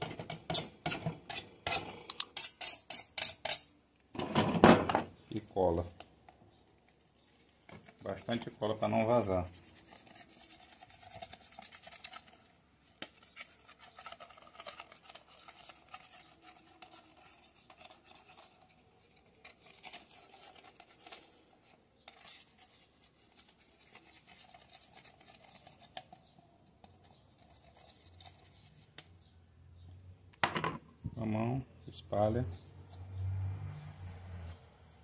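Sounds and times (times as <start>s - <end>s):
glue rubbing on plastic: 8.0s - 26.3s.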